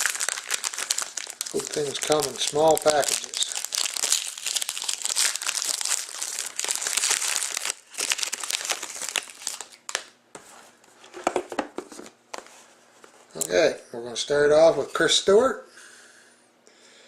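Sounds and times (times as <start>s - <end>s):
cards rustling: 0.0s - 10.1s
wrapper tearing and crinkling: 0.0s - 10.1s.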